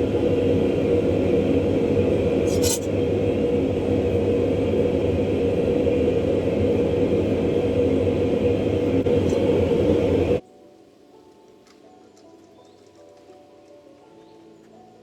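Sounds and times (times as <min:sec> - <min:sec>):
workshop machinery roaring hum: 0:00.0 - 0:10.4.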